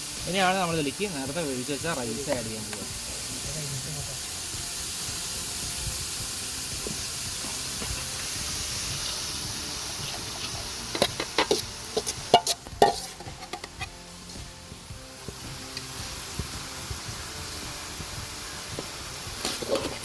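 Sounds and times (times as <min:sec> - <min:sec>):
food sizzling in oil: 0:00.0 - 0:20.0
utensil clanking against pan: 0:09.8 - 0:14.0, 0:18.8 - 0:20.0.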